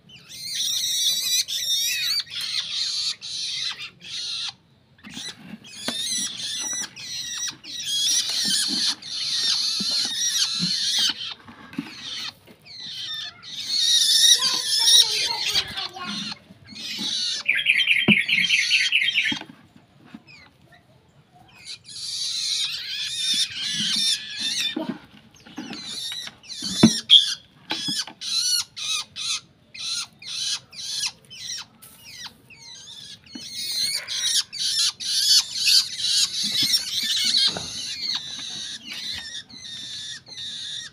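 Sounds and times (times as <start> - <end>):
fast rattling bird trill: 0.1 - 19.4, 21.5 - 24.8, 25.4 - 40.9
shrike harsh scratchy calls: 5.2 - 19.4, 28.2 - 40.9.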